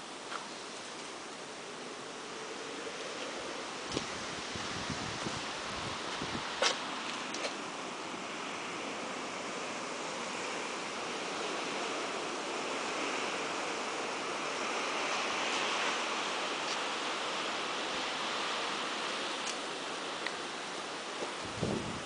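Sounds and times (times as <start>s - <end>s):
blizzard wind and driven snow: 0.0s - 22.0s.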